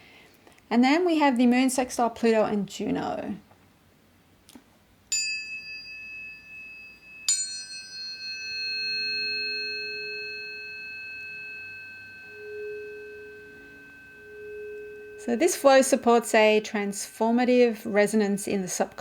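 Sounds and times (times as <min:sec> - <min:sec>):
tuning fork ringing: 0:05.1 - 0:19.0
low soft tone: 0:05.7 - 0:19.0.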